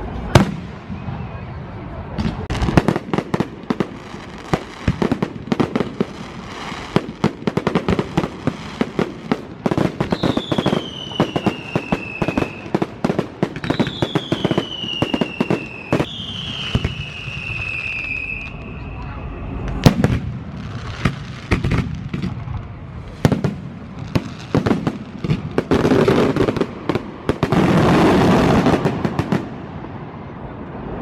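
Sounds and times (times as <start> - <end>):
fireworks cracking and banging: 0.0 - 1.4, 2.1 - 31.0
firework whistles falling in pitch: 10.1 - 12.8, 13.6 - 20.2.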